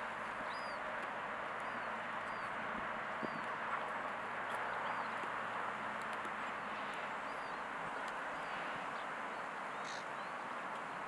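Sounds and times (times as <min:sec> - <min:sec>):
outdoor background hiss: 0:00.0 - 0:11.0
small birds chirping: 0:00.3 - 0:00.9, 0:01.5 - 0:11.0.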